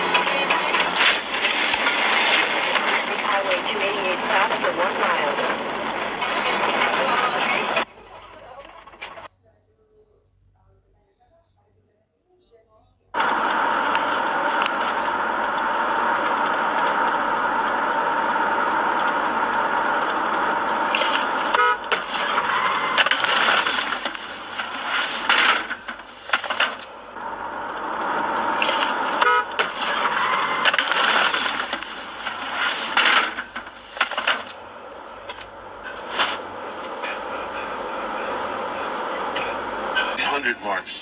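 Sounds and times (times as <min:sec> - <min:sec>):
road and traffic noise: 0:00.0 - 0:09.3, 0:13.2 - 0:41.0
car horn blast: 0:18.0 - 0:25.0, 0:28.0 - 0:31.6.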